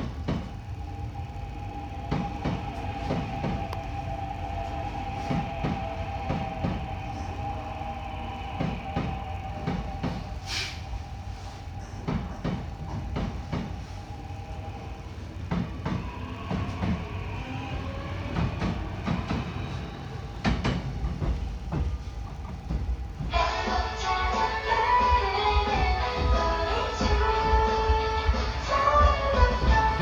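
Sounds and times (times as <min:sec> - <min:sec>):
subway train rumbling: 0:00.0 - 0:30.0.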